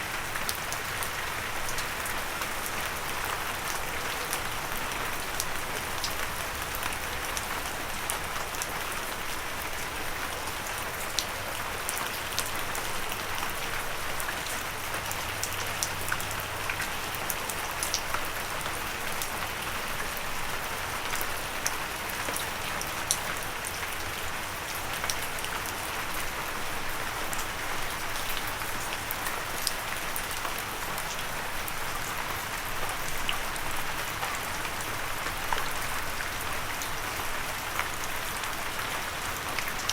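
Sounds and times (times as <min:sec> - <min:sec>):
gentle rain pattering: 0:00.0 - 0:39.9.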